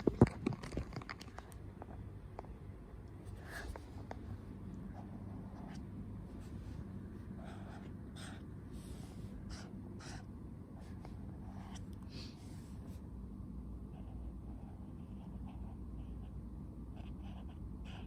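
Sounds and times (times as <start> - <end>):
steady low hum: 0.0 - 18.0
pen scratching on paper: 7.4 - 8.4, 9.0 - 11.8, 13.9 - 18.0.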